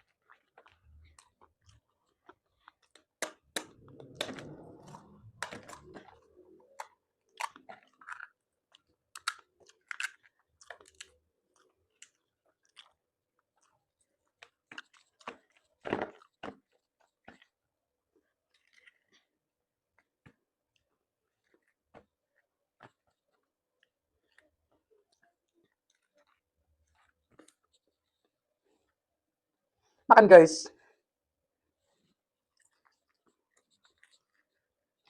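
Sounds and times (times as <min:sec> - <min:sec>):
person chewing and crunching: 0:00.0 - 0:17.6, 0:18.2 - 0:19.4, 0:20.0 - 0:28.3, 0:32.0 - 0:35.0.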